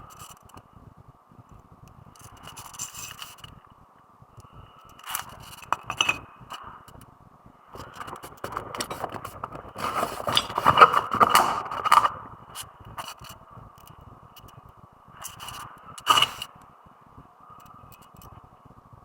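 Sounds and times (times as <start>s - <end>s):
hand tools scraping metal: 7.8s - 12.1s, 16.0s - 16.5s.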